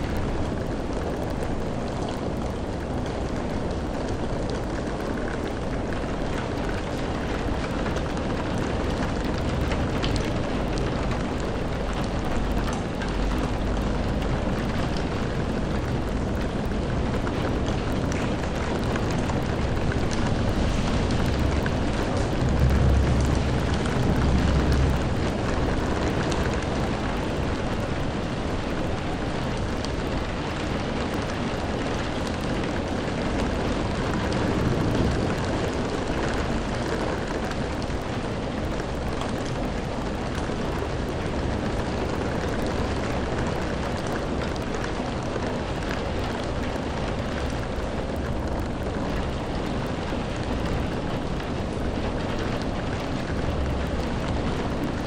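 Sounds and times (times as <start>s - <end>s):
steady rain falling: 0.0s - 55.0s
low rumble: 9.3s - 27.8s.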